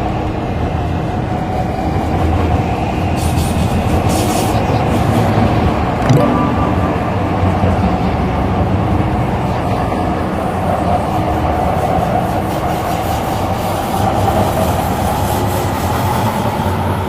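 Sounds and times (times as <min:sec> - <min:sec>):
train wheels rumbling on rail: 0:00.1 - 0:05.8, 0:10.0 - 0:17.0.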